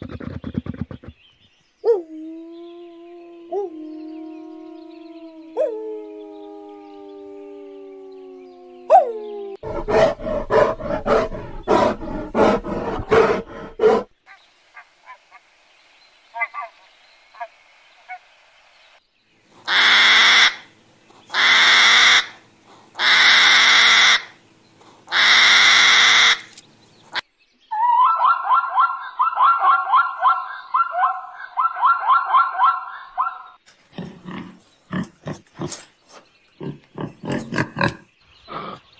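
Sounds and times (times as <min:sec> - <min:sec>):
wolf howling: 0:01.8 - 0:14.1
pulsing braying animal call: 0:09.6 - 0:14.1.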